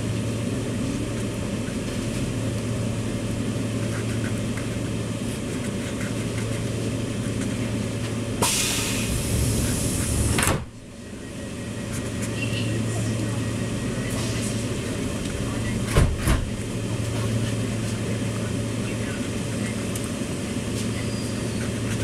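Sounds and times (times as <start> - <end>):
train carriage rumble and hum: 0.0 - 22.0
loud hissing rush: 8.4 - 10.4.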